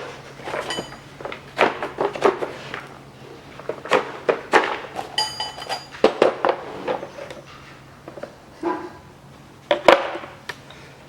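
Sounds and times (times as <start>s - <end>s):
metal tools knocking and clinking: 0.5s - 1.1s, 5.1s - 6.0s
struck metal ringing: 5.2s - 5.9s.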